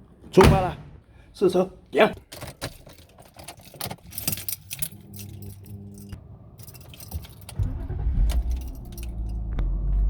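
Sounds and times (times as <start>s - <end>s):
keys jangling: 2.2s - 9.5s
car engine starting and running: 3.8s - 10.0s.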